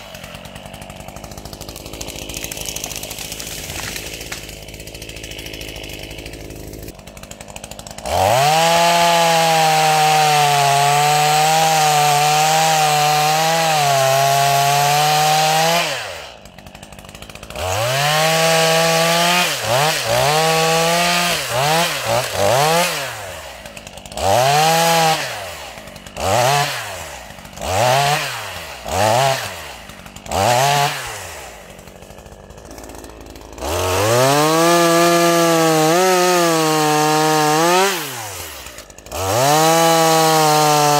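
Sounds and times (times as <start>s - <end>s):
chainsaw idling and revving: 0.0s - 40.9s.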